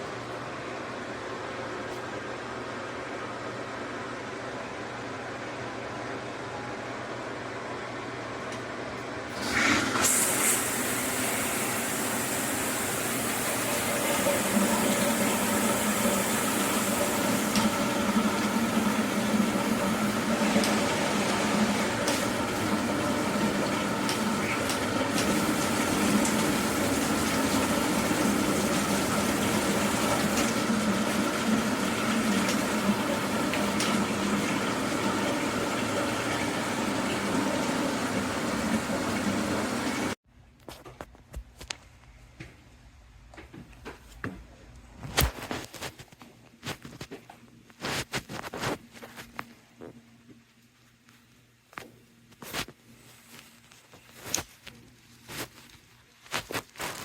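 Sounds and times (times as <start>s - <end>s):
water running in a stream: 9.9s - 40.2s.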